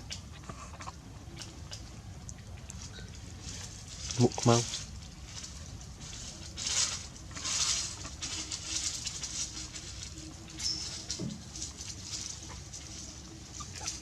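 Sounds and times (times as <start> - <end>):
young animal whimpering: 13.5 - 14.0.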